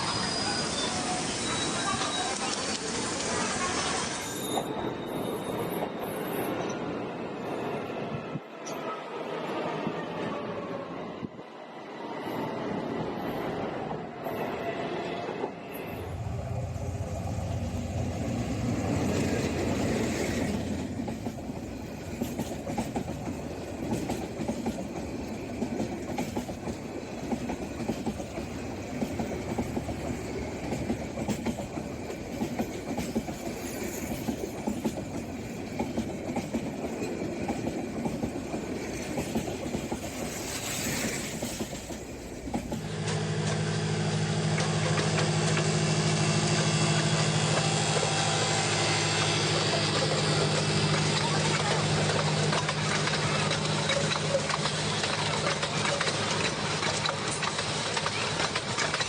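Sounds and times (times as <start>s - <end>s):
train rumble: 13.1s - 59.0s
wheels clattering on rails: 15.9s - 43.8s, 44.5s - 59.0s.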